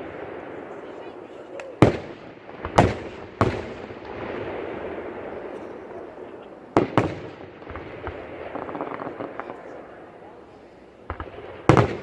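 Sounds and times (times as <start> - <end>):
fireworks crackling: 0.0 - 12.0
sharp fireworks bangs: 0.0 - 12.0
fireworks pops: 5.6 - 9.8.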